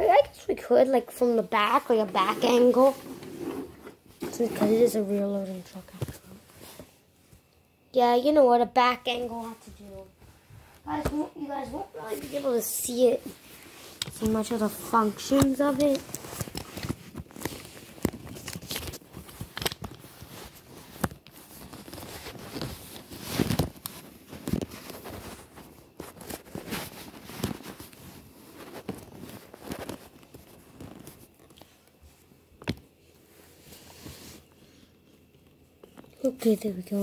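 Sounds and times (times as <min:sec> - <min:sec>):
handling rustling: 0:12.0 - 0:32.0.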